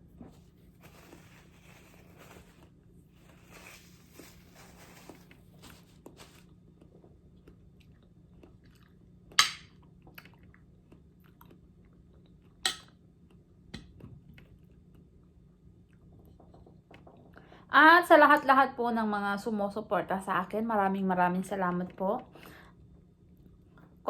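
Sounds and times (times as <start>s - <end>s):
quiet chewing: 0.1s - 17.3s.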